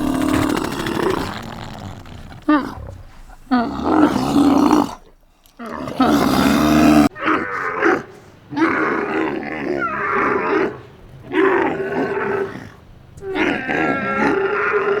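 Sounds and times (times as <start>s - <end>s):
animal calling: 0.0s - 15.0s.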